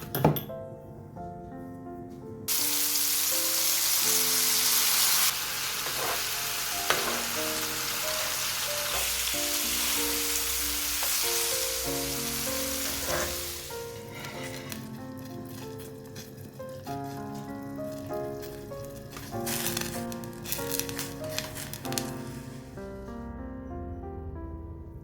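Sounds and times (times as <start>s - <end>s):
soft background music: 0.0s - 25.0s
food sizzling in oil: 2.5s - 14.0s, 19.1s - 21.8s.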